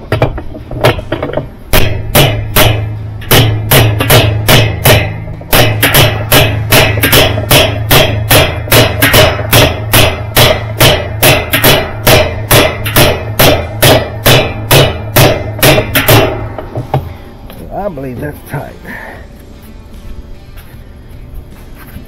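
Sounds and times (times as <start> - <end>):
hammer blows on metal: 0.0 - 17.2.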